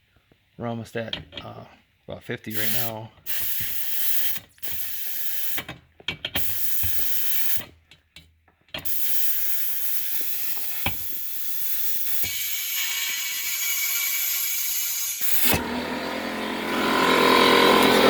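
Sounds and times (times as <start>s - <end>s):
gas torch flame hissing: 2.5s - 5.7s, 6.4s - 7.7s, 8.8s - 15.6s.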